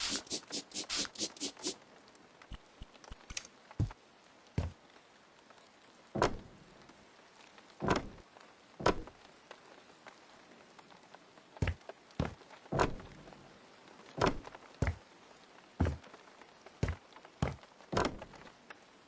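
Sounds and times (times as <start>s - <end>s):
objects knocking and thudding: 11.6s - 13.2s, 14.2s - 15.0s, 16.8s - 18.4s.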